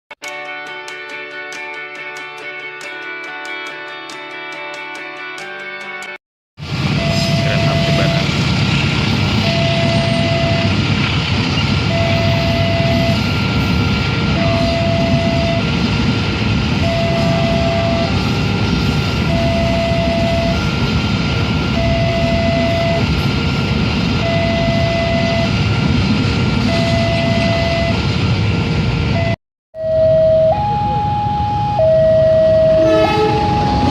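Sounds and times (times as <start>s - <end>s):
train rumbling past: 6.6s - 30.4s, 31.1s - 33.9s
level crossing two-tone alarm: 6.9s - 8.5s, 9.3s - 10.8s, 11.7s - 16.1s, 16.7s - 26.0s, 26.6s - 28.1s, 29.1s - 33.9s.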